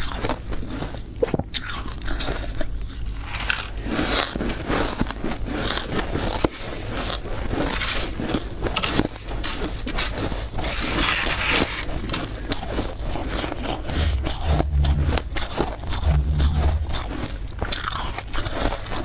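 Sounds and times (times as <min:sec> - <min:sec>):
scraping hiss: 0:13.9 - 0:17.1.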